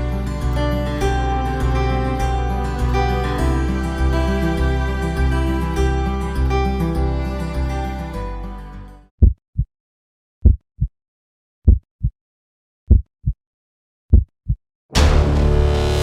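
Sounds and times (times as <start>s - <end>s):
music: 0.0s - 9.1s, 14.9s - 16.0s
heartbeat double thumps: 9.2s - 9.7s, 10.4s - 10.9s, 11.7s - 12.2s, 12.9s - 13.4s, 14.1s - 14.6s.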